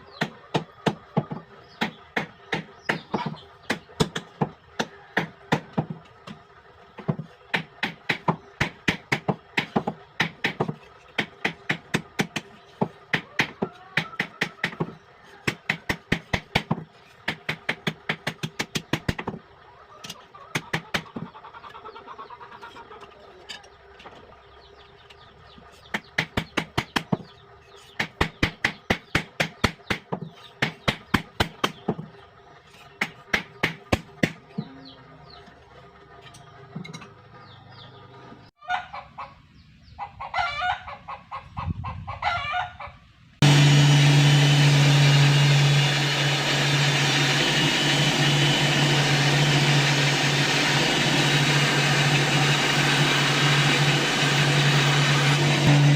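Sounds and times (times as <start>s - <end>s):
chicken clucking: 19.6s - 25.9s, 38.6s - 43.1s
loud steady machine: 43.4s - 55.9s.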